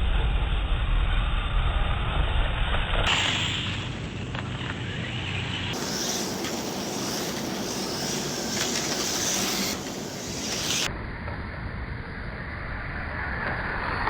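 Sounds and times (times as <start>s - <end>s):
wind: 0.0s - 14.0s
electric toy car whirring: 3.1s - 10.9s.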